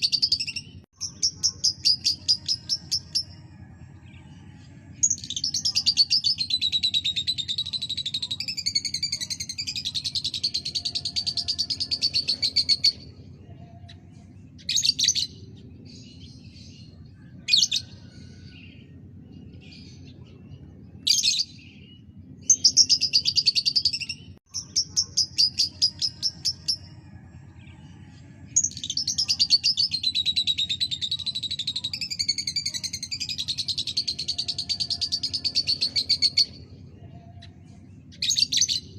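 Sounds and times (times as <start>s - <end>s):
steady low hum: 8.8s - 28.9s.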